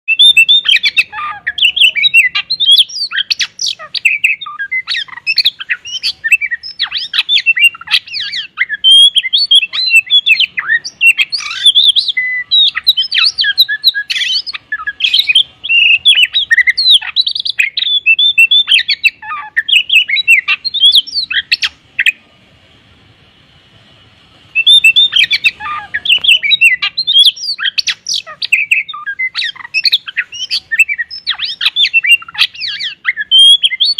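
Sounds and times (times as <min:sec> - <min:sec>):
songbird singing chirps and whistles: 0:00.1 - 0:33.9.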